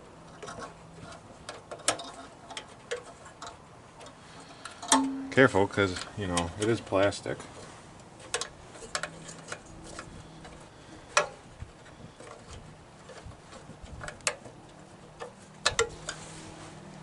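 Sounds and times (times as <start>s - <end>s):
plastic parts clicking: 15.2s - 16.2s.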